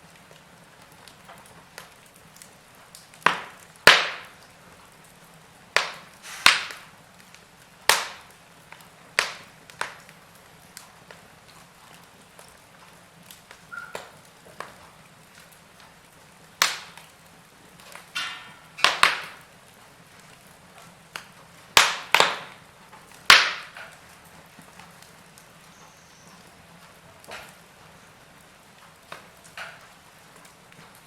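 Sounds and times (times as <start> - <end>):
faint steady background noise: 0.0 - 31.0
wood fire crackling: 0.0 - 31.0.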